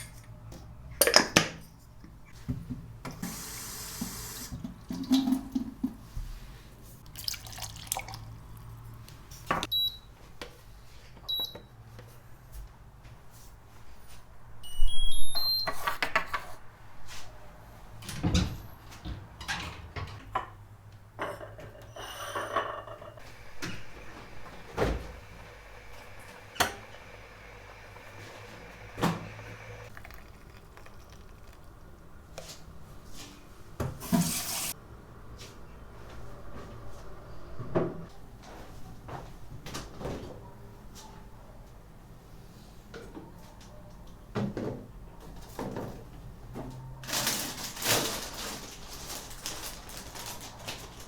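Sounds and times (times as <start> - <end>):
rising electronic beep tune: 14.6 - 15.7.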